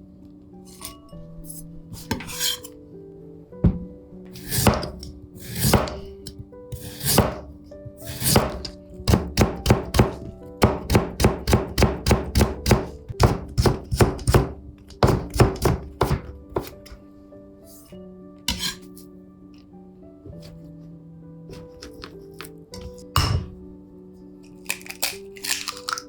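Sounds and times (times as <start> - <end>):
knife chopping on cutting board: 3.7 - 17.0, 18.5 - 18.9.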